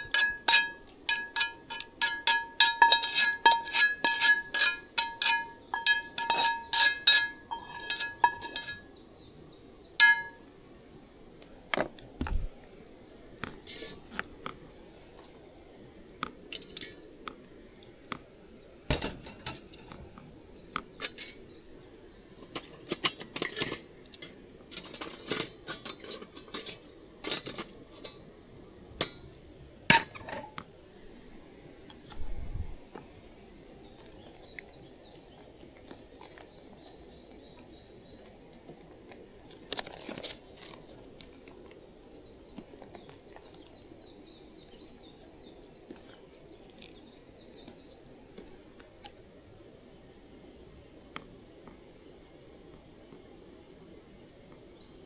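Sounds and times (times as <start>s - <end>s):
utensil striking metal pot: 0.0s - 8.9s, 10.0s - 10.4s.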